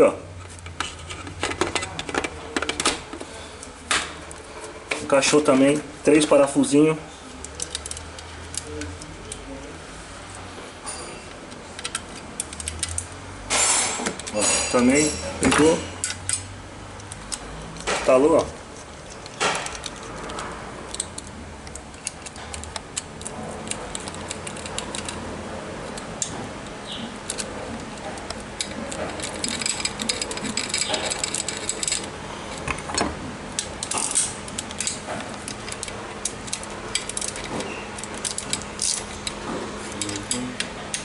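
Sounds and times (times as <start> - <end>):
metallic clicks and clinks of tools: 28.6 - 32.6.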